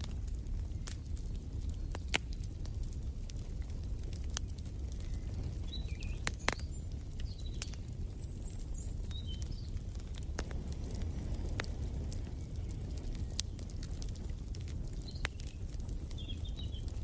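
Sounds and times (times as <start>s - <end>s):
wood fire crackling: 0.0s - 17.0s
bird chirping: 5.0s - 9.8s, 14.9s - 17.0s.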